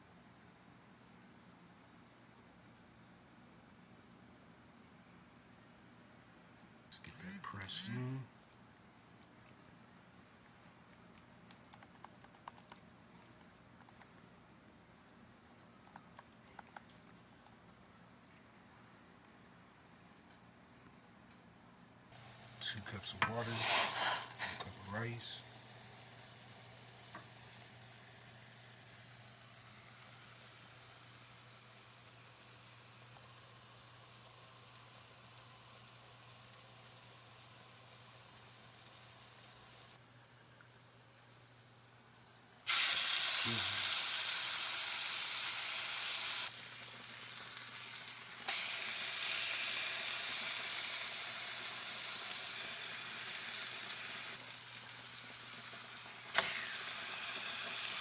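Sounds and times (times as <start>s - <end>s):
faint steady hiss: 0.0s - 58.0s
food sizzling in hot oil: 22.2s - 32.9s, 42.7s - 58.0s.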